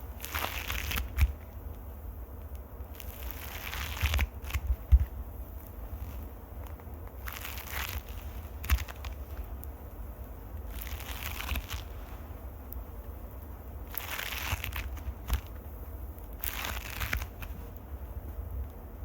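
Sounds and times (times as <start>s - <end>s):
microphone handling thumps: 4.6s - 5.2s.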